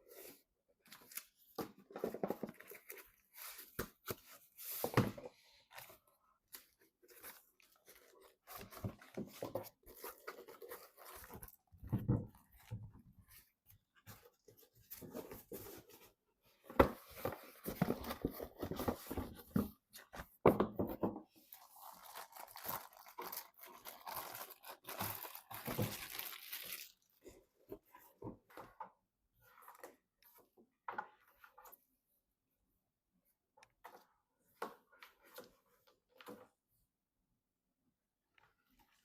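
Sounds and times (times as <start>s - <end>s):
packaging crinkling and tearing: 21.6s - 27.1s.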